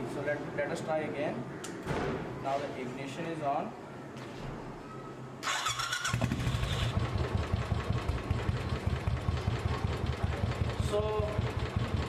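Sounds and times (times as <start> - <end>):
electric starter cranking: 5.4 - 7.0
motorcycle engine idling: 6.0 - 12.0.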